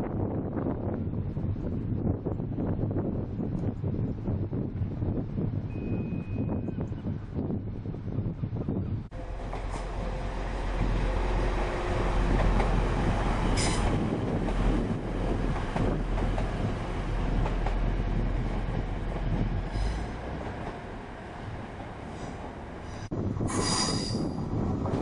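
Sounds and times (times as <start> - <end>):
train wheels rumbling on rail: 0.2 - 25.0
high-pitched wheel squeals: 5.7 - 6.8.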